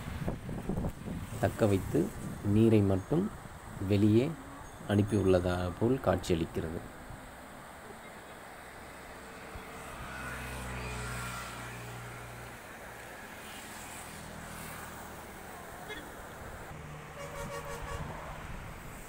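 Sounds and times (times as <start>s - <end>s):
vehicle engine hum: 7.1s - 19.0s.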